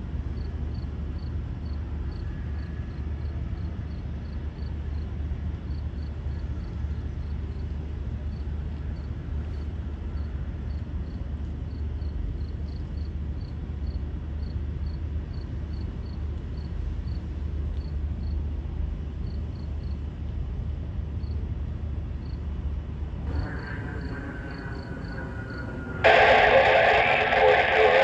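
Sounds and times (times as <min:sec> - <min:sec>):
cricket chirping: 0:23.3 - 0:28.0
low rumble: 0:23.3 - 0:28.0.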